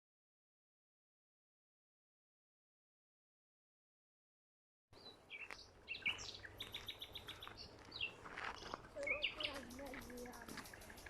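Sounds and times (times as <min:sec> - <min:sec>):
small birds chirping: 0:05.0 - 0:11.0.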